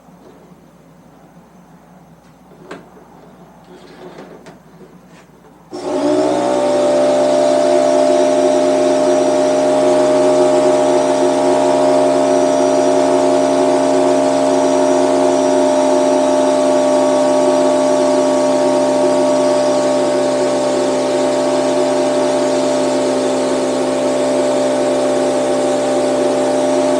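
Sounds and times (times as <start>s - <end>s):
air compressor running: 3.1s - 26.9s.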